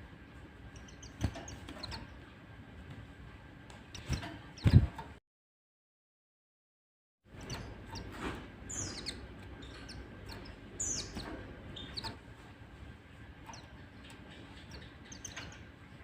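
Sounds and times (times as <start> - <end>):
bird chirping and twittering: 0.6 - 2.3, 3.8 - 5.1, 7.3 - 12.3, 13.3 - 16.0.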